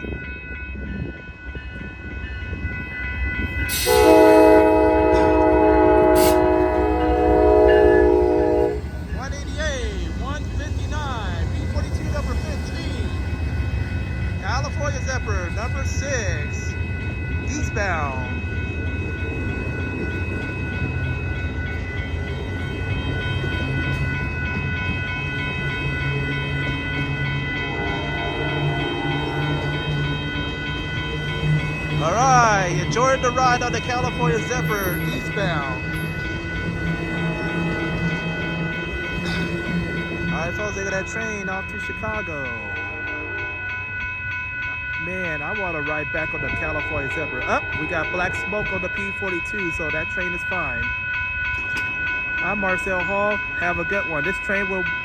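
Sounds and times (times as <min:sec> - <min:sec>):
diesel locomotives rumbling: 0:00.0 - 0:55.0
rail noise: 0:00.0 - 0:55.0
locomotive air horn chord: 0:03.7 - 0:08.9.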